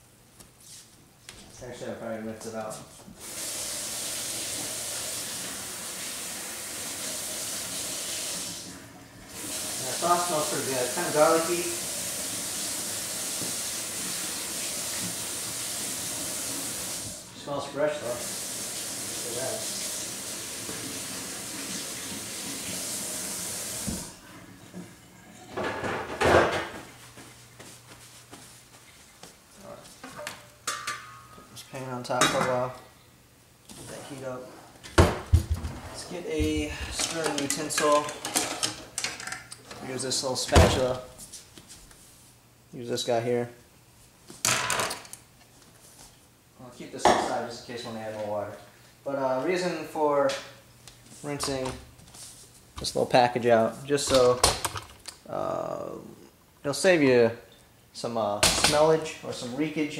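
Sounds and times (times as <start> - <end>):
tap water running: 3.2 - 26.7.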